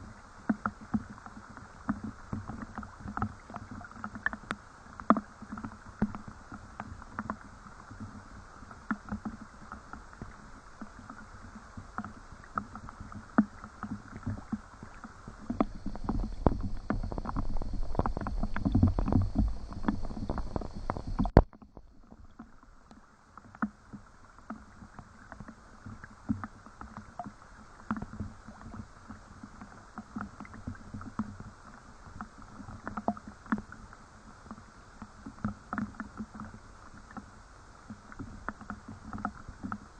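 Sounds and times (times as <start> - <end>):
low rumble: 15.5 - 21.4.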